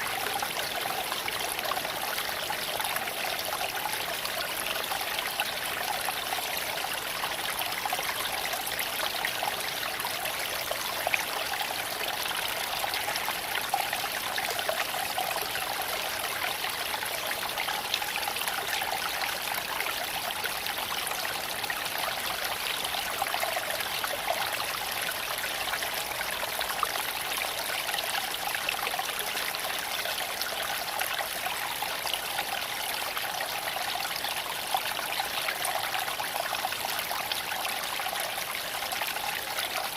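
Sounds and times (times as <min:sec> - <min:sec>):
creek water flowing over stones: 0:00.0 - 0:39.9.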